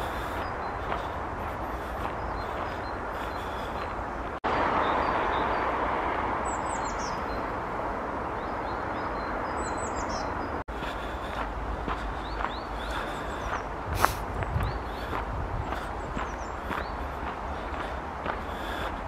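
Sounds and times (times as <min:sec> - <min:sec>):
small birds calling: 0:00.0 - 0:05.7, 0:06.4 - 0:07.6, 0:08.2 - 0:19.0
steady rushing noise: 0:00.0 - 0:09.5.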